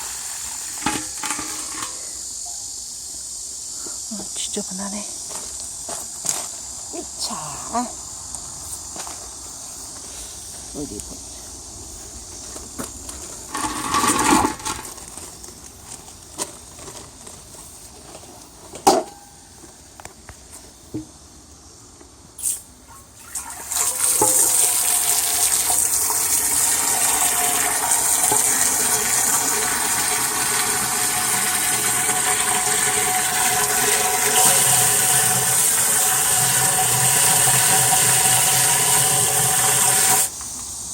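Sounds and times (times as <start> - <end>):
water rushing into a jar: 0.0 - 2.1, 13.5 - 14.9, 23.1 - 40.3.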